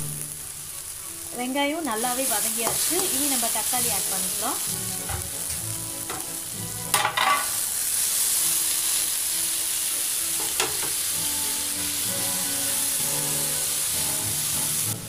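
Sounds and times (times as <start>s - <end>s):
oil sizzling in a pan: 0.0s - 15.0s
spoon knocking on pan: 5.0s - 6.3s, 6.9s - 7.6s, 10.4s - 11.0s.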